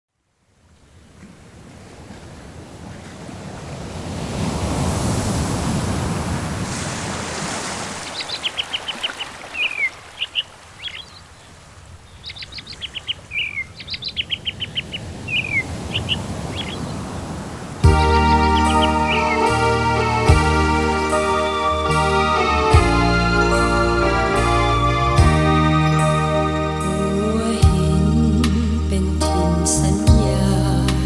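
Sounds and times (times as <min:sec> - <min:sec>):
surf washing in: 0:00.9 - 0:10.9.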